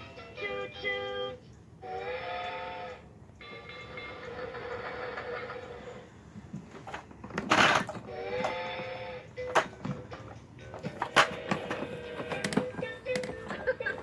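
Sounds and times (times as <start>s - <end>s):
toy tuneful notes: 0.0s - 5.1s
toy train-running sound: 0.3s - 6.0s.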